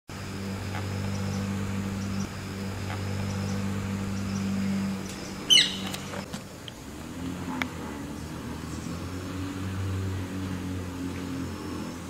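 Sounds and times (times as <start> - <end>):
low hum: 0.1 - 12.0
shrill bird call: 1.1 - 6.1.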